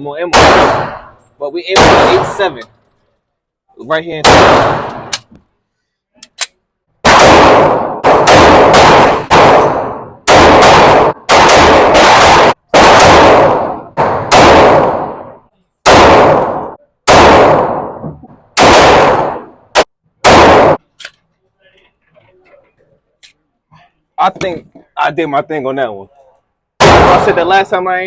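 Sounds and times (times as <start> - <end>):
gunshots with echo: 0.2 - 1.1, 1.7 - 2.6, 4.2 - 5.1, 7.0 - 20.8, 26.8 - 27.7.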